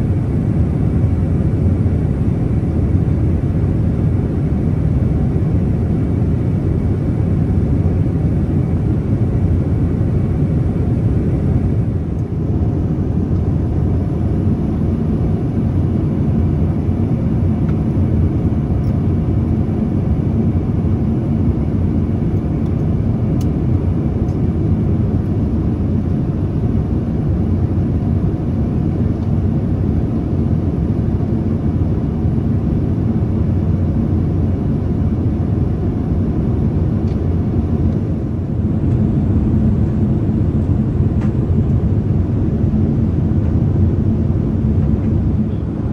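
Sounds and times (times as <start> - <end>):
airplane cabin engine rumble: 0.0 - 45.9.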